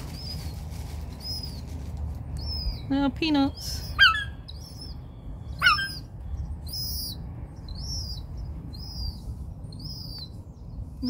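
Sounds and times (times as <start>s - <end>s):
gull chick peeping: 2.3s - 10.4s.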